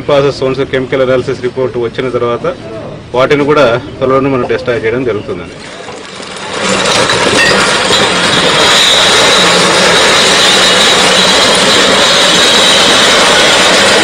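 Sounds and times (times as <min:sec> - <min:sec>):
road roller running: 0:05.4 - 0:14.0.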